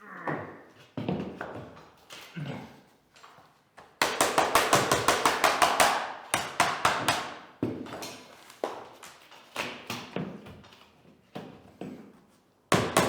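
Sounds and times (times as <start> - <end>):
floor planks being knocked: 3.9 - 9.0.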